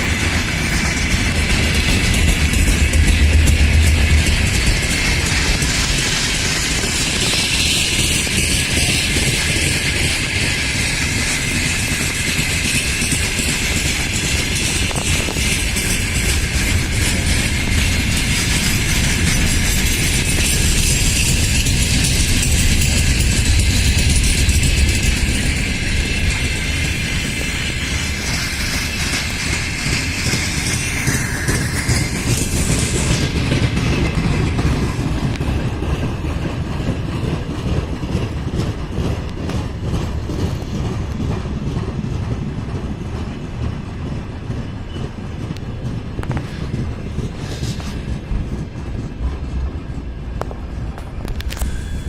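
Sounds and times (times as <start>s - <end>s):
freight train rumbling on rails: 0.0s - 52.0s
high-pitched squeal: 51.2s - 52.0s.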